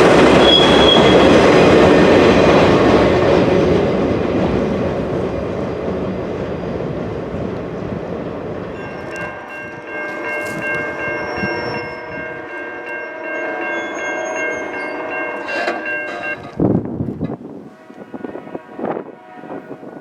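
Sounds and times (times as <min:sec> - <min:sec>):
train rumble: 0:00.0 - 0:20.0
locomotive air horn chord: 0:17.6 - 0:20.0.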